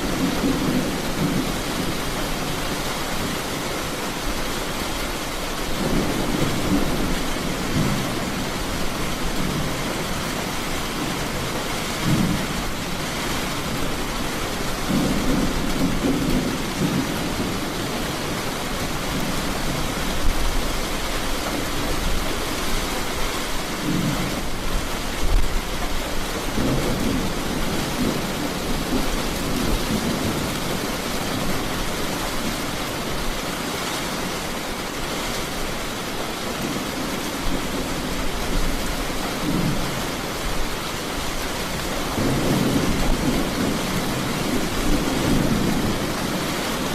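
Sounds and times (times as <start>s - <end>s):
thunder rumbling: 0.0s - 3.4s, 5.6s - 22.6s, 23.6s - 33.3s, 41.6s - 46.9s
heavy rain falling: 0.0s - 46.9s.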